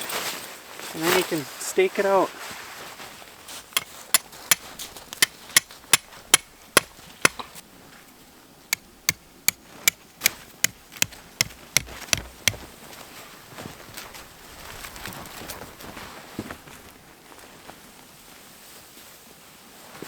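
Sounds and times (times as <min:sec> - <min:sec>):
hammering tent stakes: 0:03.8 - 0:07.6, 0:08.8 - 0:12.8.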